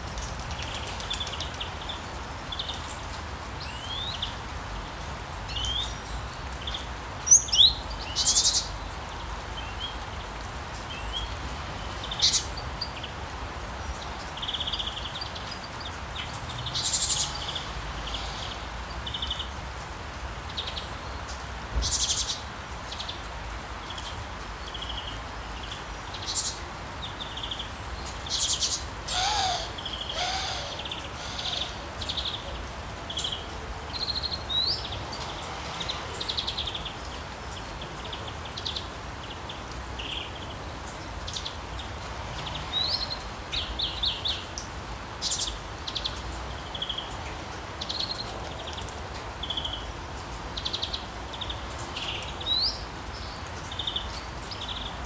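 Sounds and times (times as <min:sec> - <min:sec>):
rain hiss: 0:00.0 - 0:55.0
birds calling and chirping: 0:27.3 - 0:37.0
low bird calls: 0:28.3 - 0:32.6
insects buzzing: 0:29.1 - 0:32.0.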